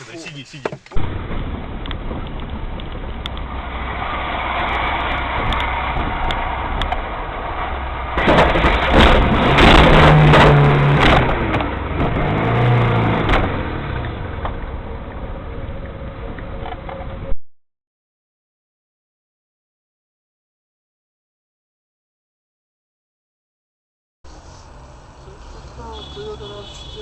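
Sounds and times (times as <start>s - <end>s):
car engine and road noise: 0.0s - 17.4s, 24.2s - 27.0s.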